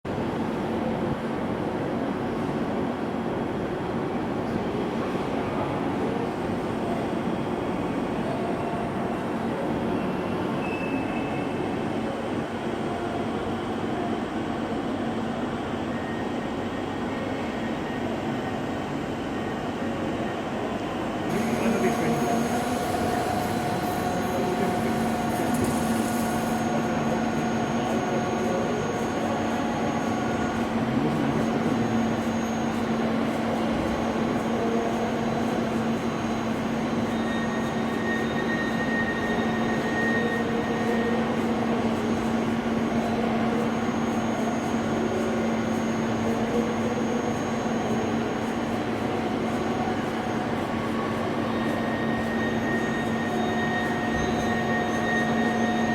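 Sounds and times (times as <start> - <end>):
faint machine whining: 9.9 - 55.9
lathe mechanical hum: 12.3 - 55.9.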